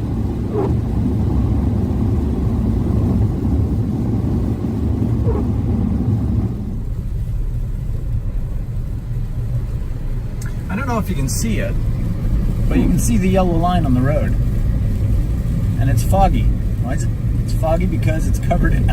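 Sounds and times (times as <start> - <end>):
road and tyre rumble in car cabin: 0.0 - 18.9.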